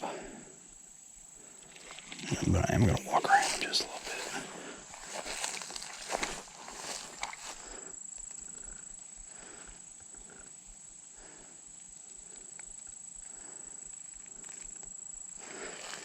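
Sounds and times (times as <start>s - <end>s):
soft footsteps walking: 2.3s - 7.7s.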